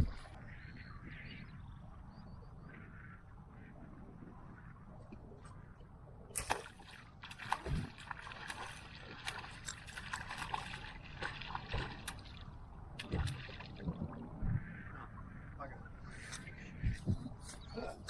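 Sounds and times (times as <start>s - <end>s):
shallow water splashing: 6.4s - 14.3s.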